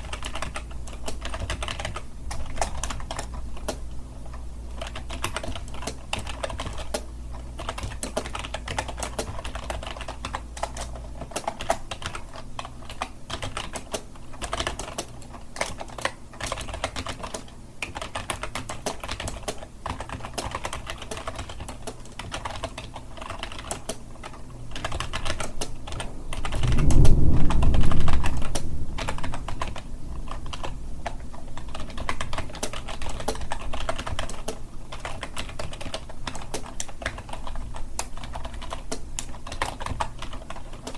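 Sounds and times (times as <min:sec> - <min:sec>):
keyboard typing clicks: 0:00.1 - 0:27.1, 0:30.4 - 0:40.9
low rumble: 0:25.2 - 0:33.6.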